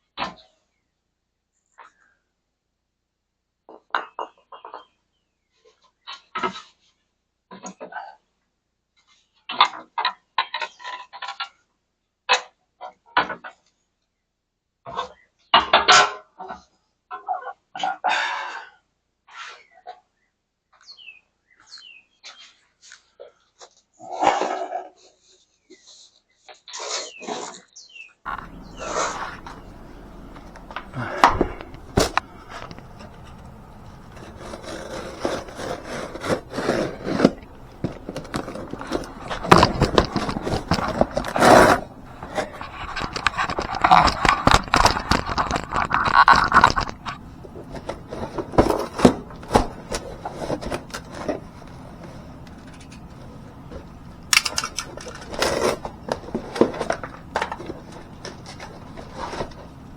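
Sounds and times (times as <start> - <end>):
metal tools clicking and knocking: 28.3 - 59.9
scraping and rubbing: 28.3 - 59.9.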